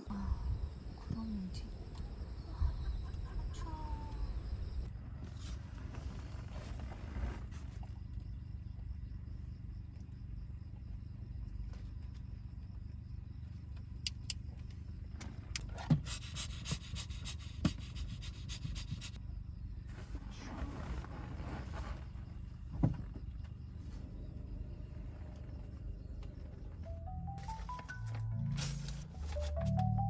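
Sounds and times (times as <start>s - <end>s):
wind buffeting a car: 0.2s - 4.9s.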